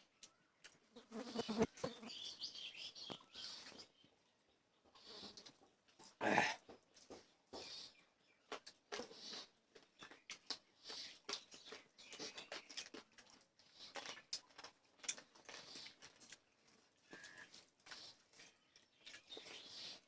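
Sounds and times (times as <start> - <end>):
chewing and mouth smacking: 8.5 - 20.0.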